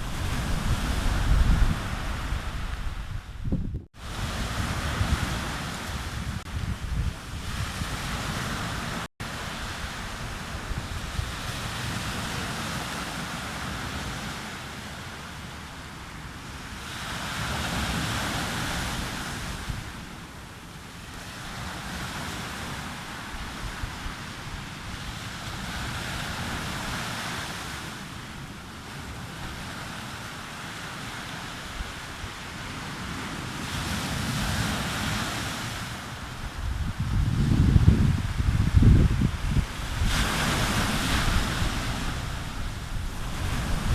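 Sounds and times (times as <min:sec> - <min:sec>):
sea surf breaking: 0:00.0 - 0:03.4, 0:04.0 - 0:14.9, 0:28.9 - 0:43.9
wind on microphone: 0:00.0 - 0:14.4, 0:31.3 - 0:43.9.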